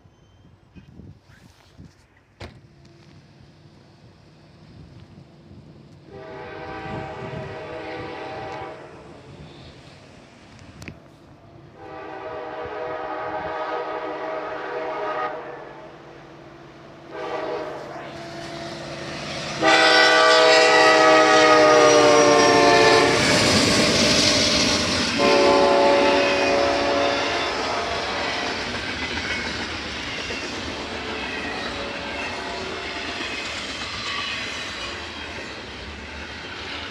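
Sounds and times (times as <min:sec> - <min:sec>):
train rumble: 0:00.0 - 0:36.9
locomotive air horn blasts: 0:06.1 - 0:09.1, 0:11.8 - 0:15.9, 0:17.1 - 0:18.7, 0:19.5 - 0:23.4, 0:25.2 - 0:28.6.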